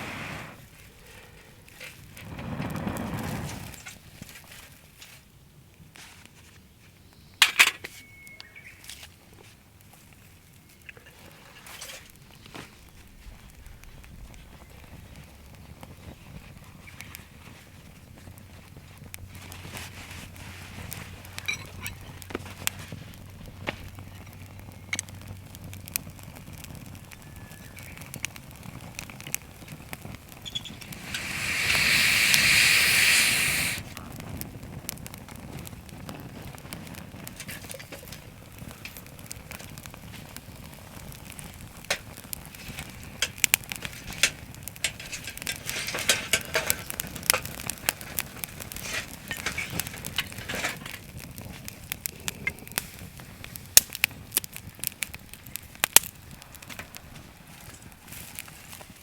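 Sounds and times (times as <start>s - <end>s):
loud hiss: 0.0s - 0.8s, 2.2s - 4.0s, 30.4s - 34.0s
wood fire crackling and popping: 0.0s - 59.0s.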